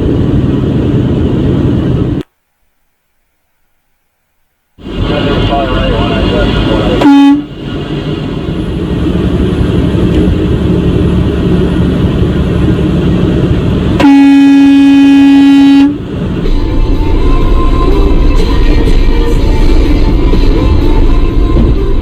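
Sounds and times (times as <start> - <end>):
road and engine rumble: 0.0 - 22.0
vehicle horn blasts: 7.0 - 7.5, 14.0 - 16.1.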